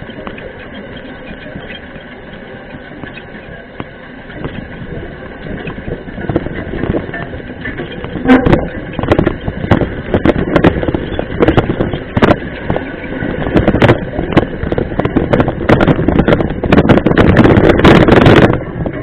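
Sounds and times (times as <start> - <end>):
bike clattering over rough trail: 0.0 - 19.0
wind noise on microphone: 0.0 - 19.0.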